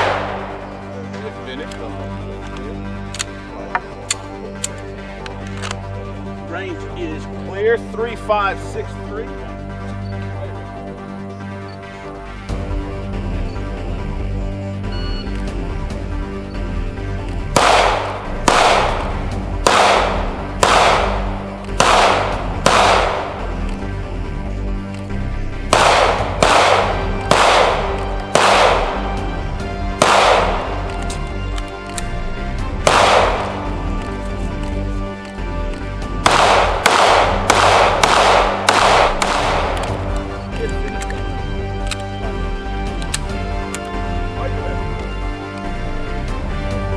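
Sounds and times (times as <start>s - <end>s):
gunshots echoing: 0.0s - 1.2s, 17.5s - 23.8s, 25.7s - 32.0s, 32.8s - 34.1s, 36.1s - 40.6s
background music: 0.0s - 46.9s.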